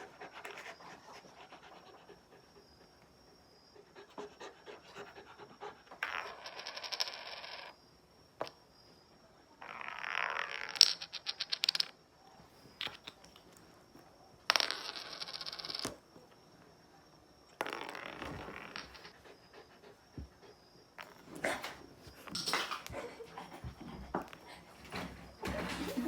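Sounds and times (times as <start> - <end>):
bottle caps clattering on floor: 6.0 - 7.7, 14.5 - 16.0.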